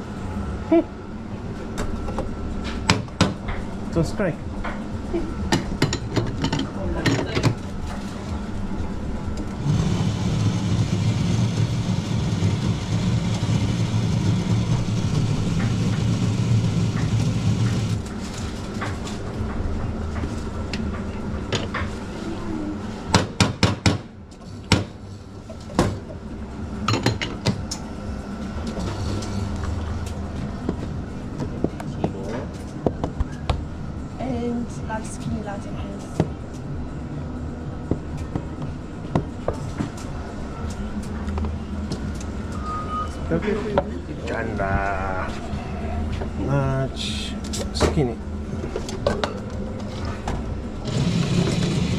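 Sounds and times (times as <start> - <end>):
espresso machine hum and hiss: 4.8 - 19.2, 46.2 - 51.9.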